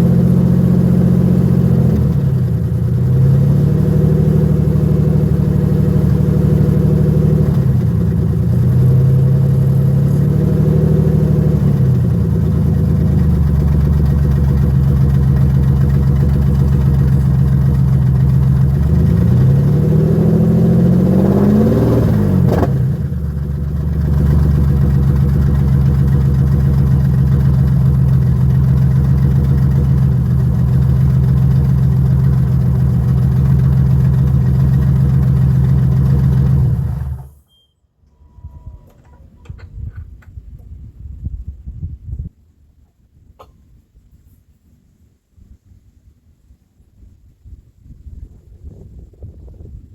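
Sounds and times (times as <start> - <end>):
car engine revving: 0.0 - 37.2
car engine idling: 0.0 - 37.3.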